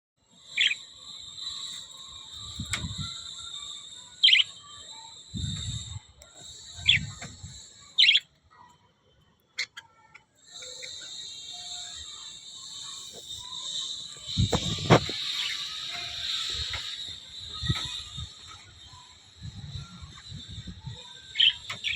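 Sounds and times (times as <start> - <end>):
parrots chattering: 0.4 - 8.3, 21.0 - 21.9.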